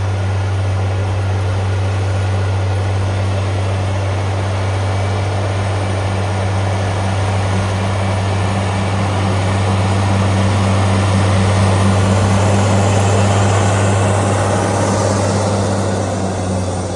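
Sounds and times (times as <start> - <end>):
engine humming: 0.0 - 16.9
rushing noise: 3.9 - 16.9.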